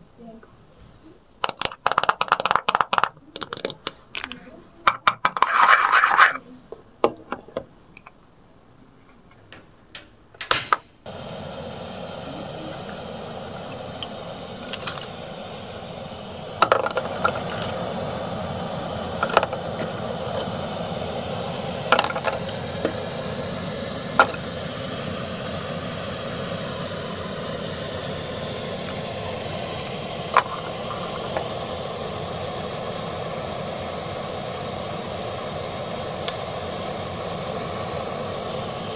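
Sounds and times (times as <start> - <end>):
plastic toy pot clicking: 1.3 - 5.7
steady hiss: 11.0 - 38.9.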